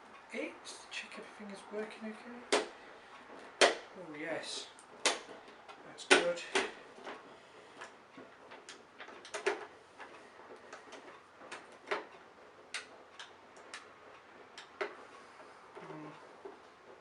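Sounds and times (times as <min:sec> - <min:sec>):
vacuum cleaner parts clicking: 0:04.8 - 0:12.1.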